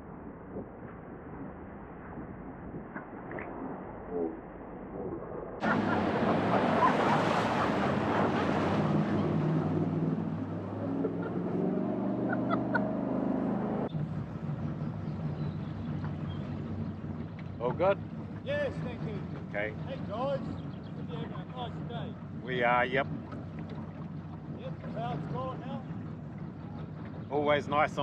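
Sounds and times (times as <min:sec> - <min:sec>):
boat engine drone: 0:00.0 - 0:28.0
rushing water: 0:05.6 - 0:28.0.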